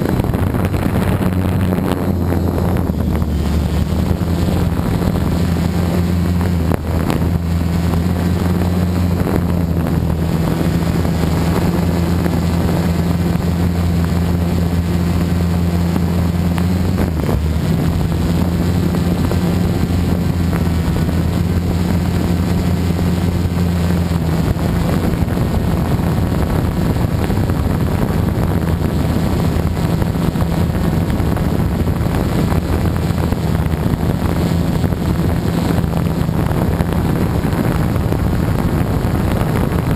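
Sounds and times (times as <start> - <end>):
quadcopter motors humming: 0.0 - 39.9
wind noise on microphone: 0.0 - 39.9.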